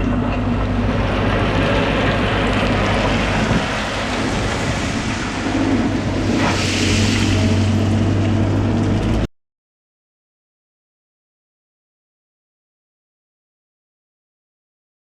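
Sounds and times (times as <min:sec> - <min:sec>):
heavy machinery engine humming: 0:00.0 - 0:09.3
wind noise on microphone: 0:01.6 - 0:09.3
rush of hiss: 0:03.6 - 0:08.1.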